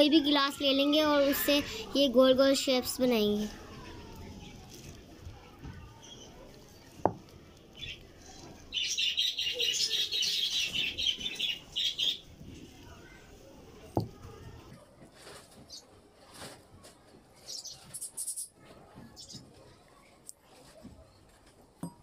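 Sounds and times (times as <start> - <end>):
tumbler knocking on dough: 7.0 - 7.3
birds twittering: 7.6 - 12.4.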